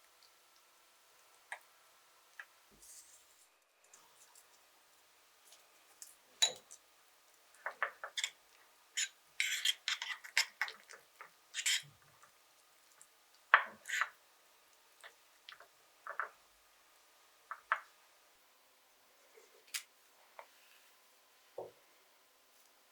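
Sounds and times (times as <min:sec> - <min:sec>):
spoon clinking against bowl: 0:06.4 - 0:06.8.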